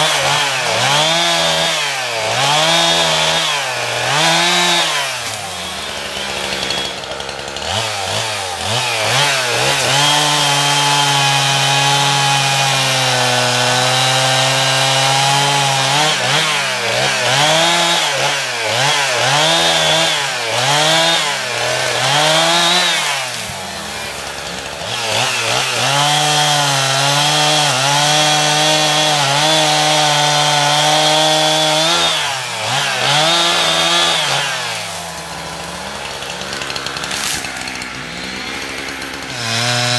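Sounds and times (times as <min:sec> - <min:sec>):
chainsaw running at full throttle: 0:00.0 - 0:39.9.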